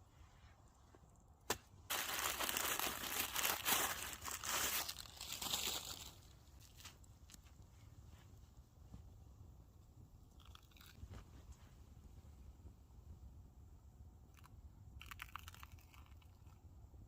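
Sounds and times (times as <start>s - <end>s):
crinkly material crumpled: 1.9s - 8.3s.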